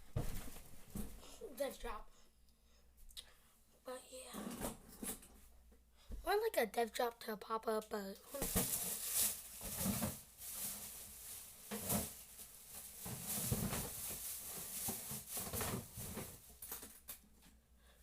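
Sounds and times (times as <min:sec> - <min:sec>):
rustling and handling noises: 0:08.3 - 0:17.6.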